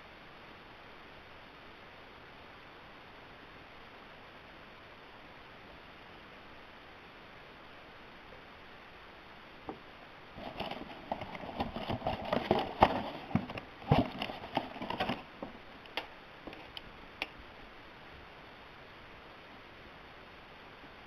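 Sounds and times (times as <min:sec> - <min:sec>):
hands handling packaging: 0:10.4 - 0:16.9.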